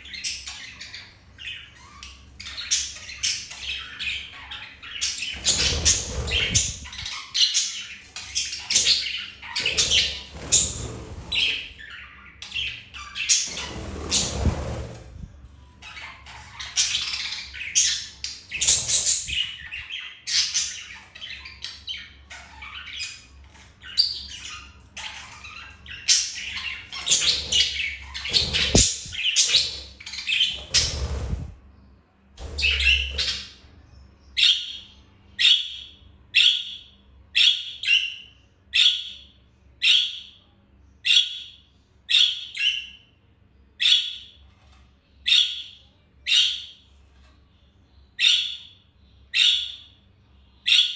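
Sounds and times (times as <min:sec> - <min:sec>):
budgerigars chattering: 0:00.1 - 0:14.4, 0:24.2 - 0:31.4, 0:32.4 - 0:33.6.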